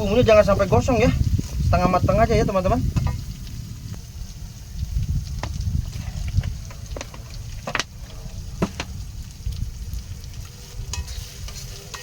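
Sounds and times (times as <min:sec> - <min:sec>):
paste sizzling in a pan: 0:00.0 - 0:12.0
spatula scraping a pan: 0:10.9 - 0:12.0.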